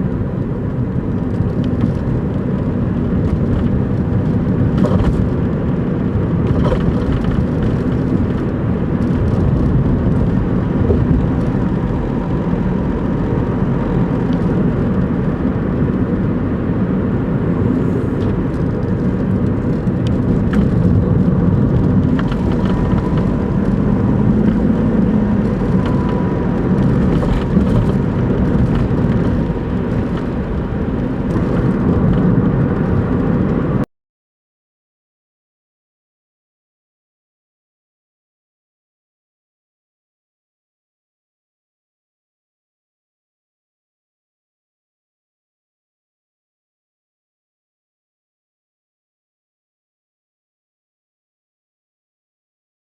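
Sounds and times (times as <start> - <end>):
car engine and road drone: 0.0 - 33.9.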